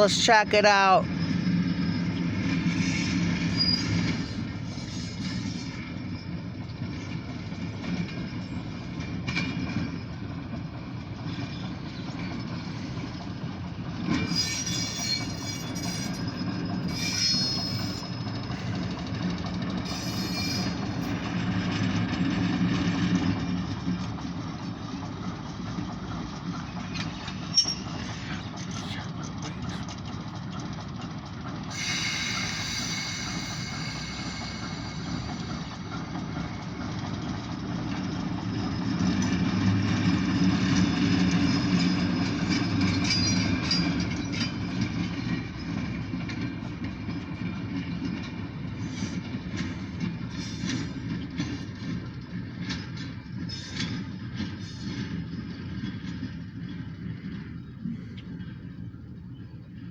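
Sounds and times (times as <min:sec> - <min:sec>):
diesel locomotive engine rumble: 0:00.0 - 0:59.9
high-pitched wheel squeals: 0:02.7 - 0:06.4, 0:14.1 - 0:18.8, 0:19.8 - 0:21.3, 0:27.5 - 0:28.2, 0:31.7 - 0:35.4.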